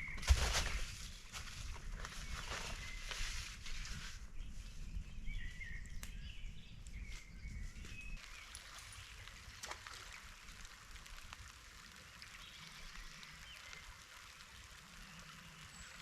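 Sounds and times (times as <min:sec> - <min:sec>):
rustling and crunching: 0:00.0 - 0:04.2.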